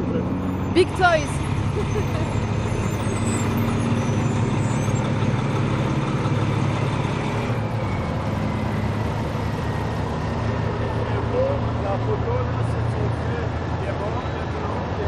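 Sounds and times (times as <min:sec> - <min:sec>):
diesel truck engines running: 0:00.0 - 0:15.0.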